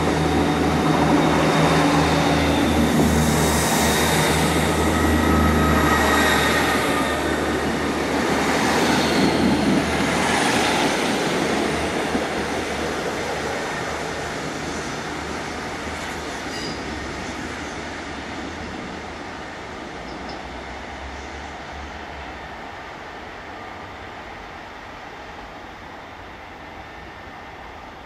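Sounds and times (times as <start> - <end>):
train running on rails: 0.0 - 28.0
high wheel squeal: 0.4 - 7.8, 8.8 - 9.8.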